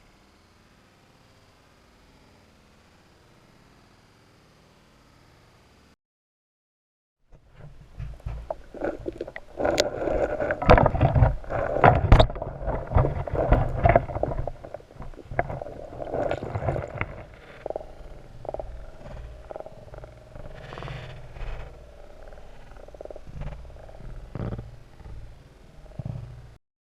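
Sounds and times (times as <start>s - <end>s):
creek water gurgling and splashing: 7.4s - 25.3s
low rumble: 7.4s - 26.6s.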